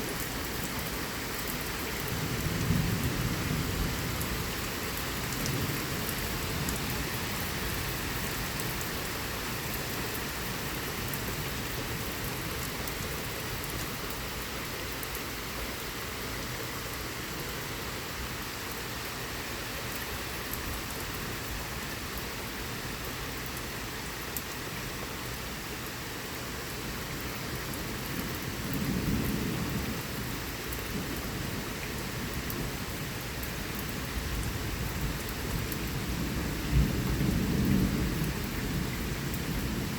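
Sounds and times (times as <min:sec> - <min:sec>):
heavy rain falling: 0:00.0 - 0:39.9
low rumble of thunder: 0:02.0 - 0:09.1, 0:27.7 - 0:33.2, 0:33.8 - 0:39.9.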